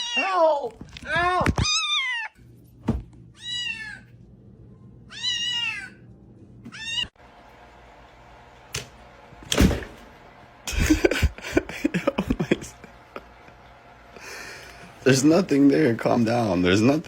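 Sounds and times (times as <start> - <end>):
cat meowing: 3.4 - 4.1, 5.1 - 6.0.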